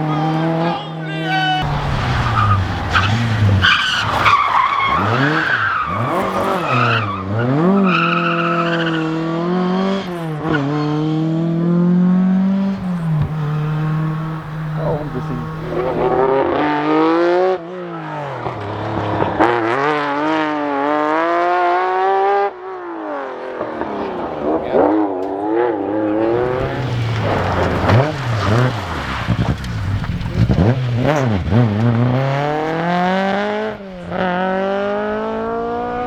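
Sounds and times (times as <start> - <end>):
rally car engine revving: 0.0 - 36.0
sharp exhaust cracks: 1.6 - 6.9, 12.7 - 16.4, 26.2 - 31.2.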